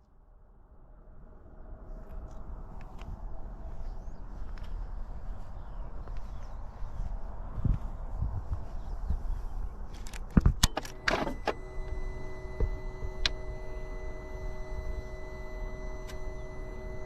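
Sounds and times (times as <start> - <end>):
ignition clicks: 10.0 - 17.0
electric whirr: 10.6 - 17.0
steady electrical hum: 10.8 - 17.0.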